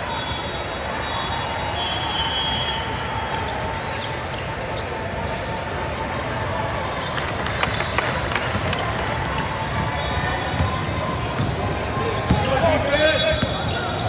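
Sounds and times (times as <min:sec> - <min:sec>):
basketball bouncing on gym floor: 0:07.2 - 0:14.0.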